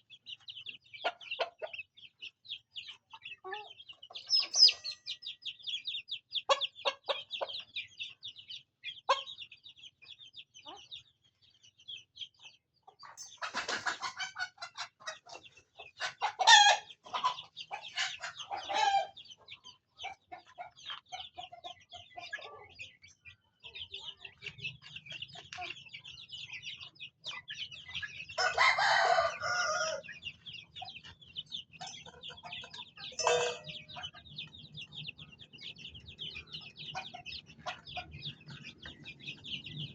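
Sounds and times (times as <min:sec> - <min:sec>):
hens clucking: 0:00.0 - 0:09.5, 0:12.4 - 0:39.9
chicks peeping: 0:00.0 - 0:39.9
rooster crowing: 0:28.4 - 0:30.1.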